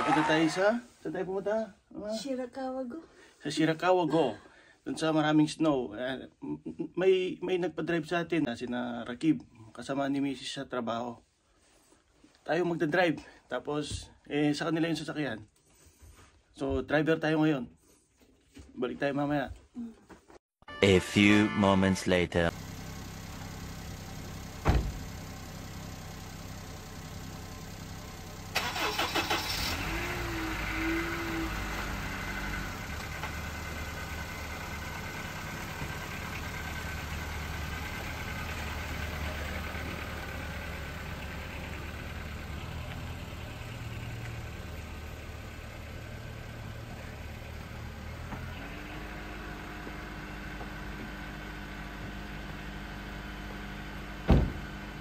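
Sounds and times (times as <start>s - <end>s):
car engine starting and running: 22.1s - 55.0s.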